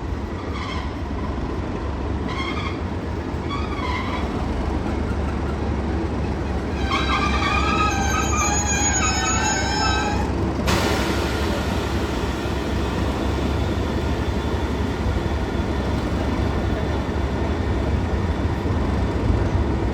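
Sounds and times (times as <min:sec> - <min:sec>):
train rumble: 0:00.0 - 0:19.9
train wheels squealing: 0:00.2 - 0:01.2, 0:02.2 - 0:10.4.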